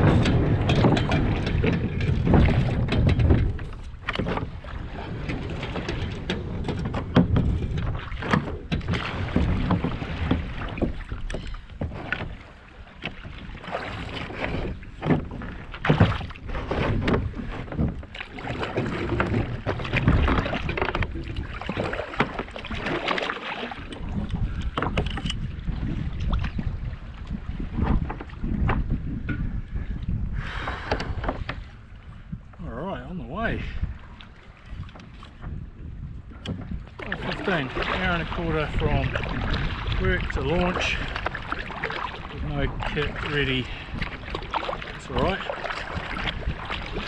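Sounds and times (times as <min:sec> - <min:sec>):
wind noise on microphone: 0:00.0 - 0:12.5, 0:13.1 - 0:23.0, 0:23.6 - 0:47.0
irregular knocks and clatter: 0:00.0 - 0:26.7, 0:36.3 - 0:47.0.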